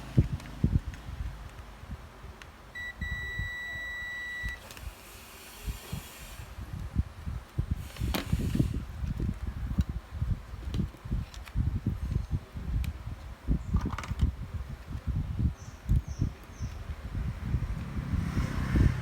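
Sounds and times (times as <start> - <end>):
electronic beeper beeping: 2.8 - 4.6.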